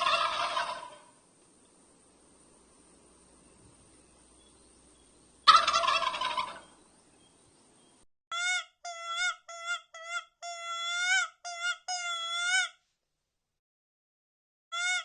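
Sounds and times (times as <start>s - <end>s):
turkey gobbling: 0.0s - 1.2s, 5.4s - 6.8s.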